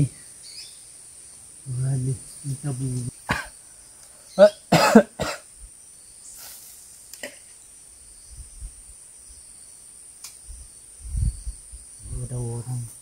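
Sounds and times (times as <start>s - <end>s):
insects chirring: 0.0s - 13.0s
person coughing: 3.3s - 3.5s, 4.4s - 5.4s.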